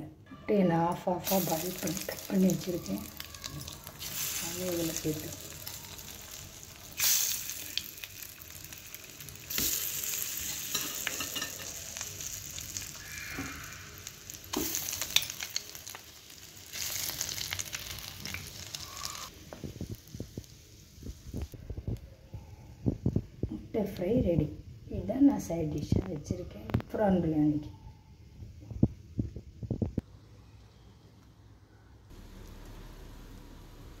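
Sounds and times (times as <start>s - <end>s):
eggs sizzling in frying pan: 1.2s - 21.6s.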